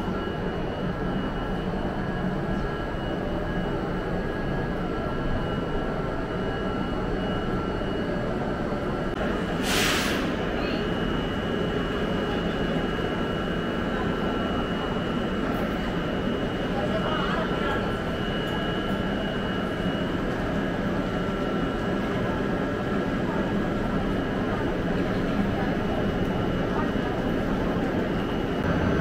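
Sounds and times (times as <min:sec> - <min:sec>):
train hum and whine: 0:00.0 - 0:29.0
brief hiss: 0:09.6 - 0:10.4.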